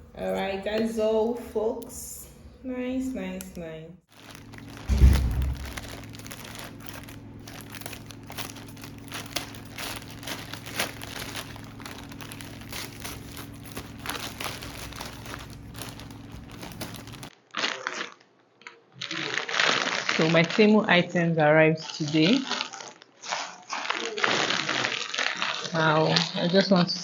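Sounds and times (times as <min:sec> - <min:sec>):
steady low hum: 0:00.0 - 0:17.3
packaging crinkling: 0:04.1 - 0:20.7, 0:21.8 - 0:26.6.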